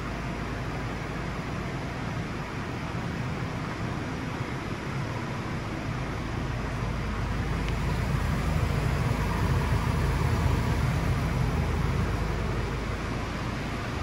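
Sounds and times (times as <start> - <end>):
diesel engine idling: 3.0 - 14.0.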